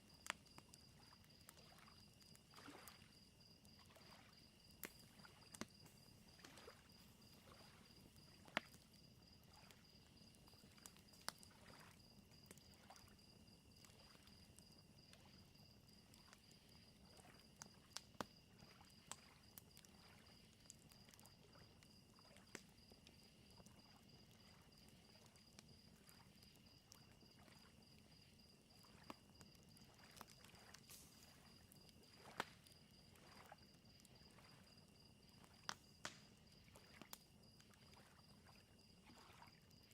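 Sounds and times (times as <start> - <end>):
fire crackling and popping: 0.0 - 39.1
crickets chirping: 0.0 - 39.9
lake waves lapping: 1.6 - 3.2, 6.3 - 8.6, 37.8 - 39.6.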